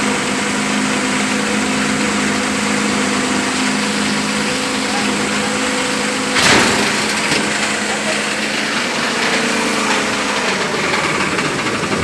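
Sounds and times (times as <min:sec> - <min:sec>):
grinder humming and whirring: 0:00.0 - 0:12.0
sharp crunching clatter: 0:06.3 - 0:12.0.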